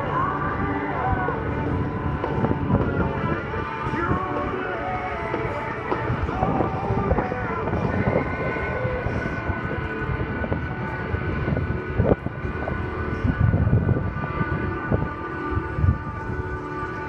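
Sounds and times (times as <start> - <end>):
propeller plane engine droning: 0.0 - 17.0.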